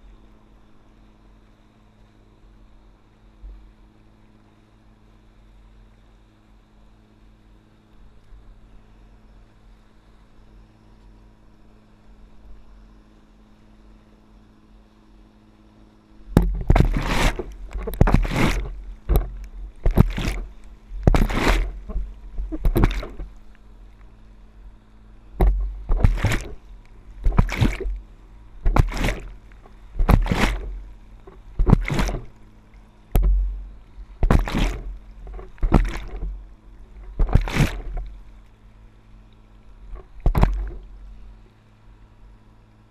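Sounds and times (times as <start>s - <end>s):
faint steady hum: 0.0s - 42.9s
water splashing and sloshing: 16.2s - 42.1s.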